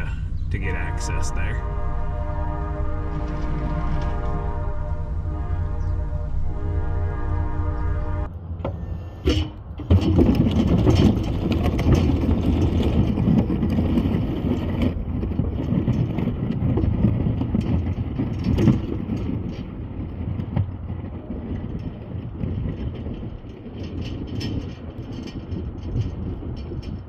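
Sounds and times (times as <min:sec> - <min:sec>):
snow-plow truck engine rumble: 0:00.0 - 0:27.0
knocks and clatter: 0:08.6 - 0:27.0.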